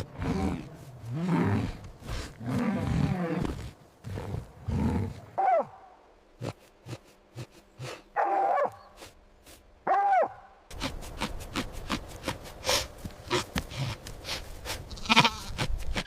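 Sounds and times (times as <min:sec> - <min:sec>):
dog barking: 0:09.9 - 0:10.4.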